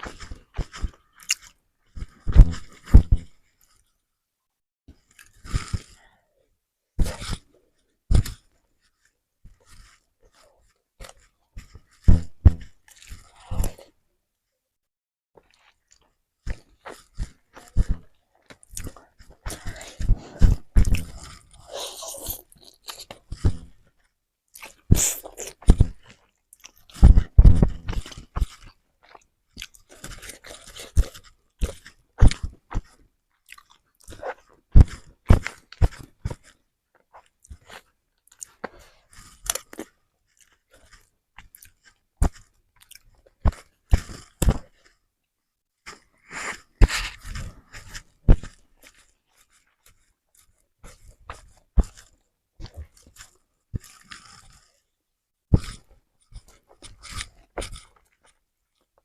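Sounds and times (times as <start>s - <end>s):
wet chewing and lip smacking: 0.0s - 3.3s, 8.2s - 12.2s, 12.8s - 14.0s, 15.4s - 23.8s, 24.5s - 45.0s, 45.9s - 54.8s.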